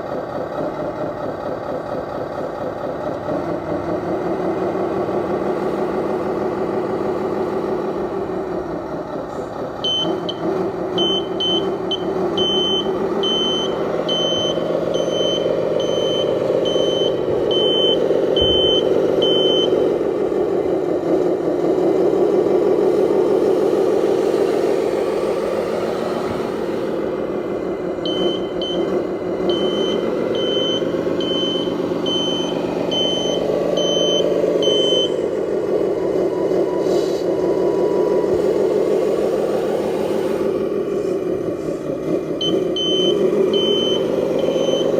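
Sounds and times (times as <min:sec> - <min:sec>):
high reversing beeper: 0:11.0 - 0:19.9, 0:28.0 - 0:35.3, 0:42.4 - 0:44.9.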